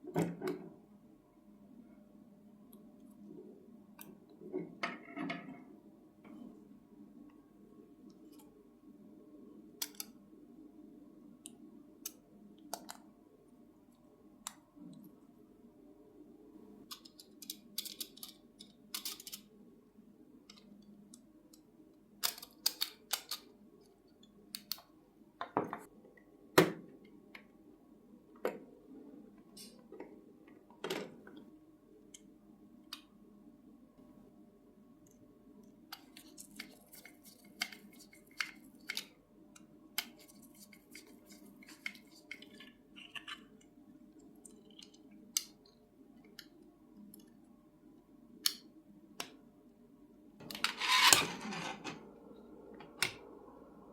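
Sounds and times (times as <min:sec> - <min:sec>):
small tools clicking and tapping: 0:16.9 - 0:19.4
steady low hum: 0:52.0 - 0:53.9.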